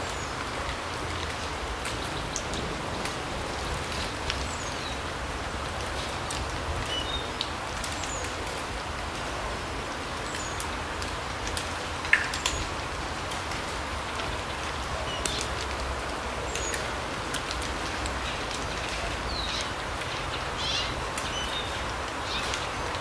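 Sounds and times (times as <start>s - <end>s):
small birds calling: 19.3s - 22.9s.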